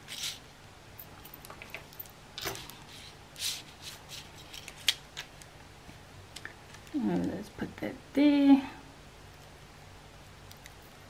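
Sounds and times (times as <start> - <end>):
paper and craft tools handled: 1.6 - 5.3.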